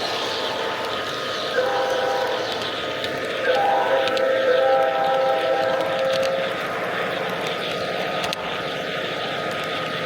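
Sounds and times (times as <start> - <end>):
model locomotive horn chord: 1.5 - 2.5, 3.4 - 6.5.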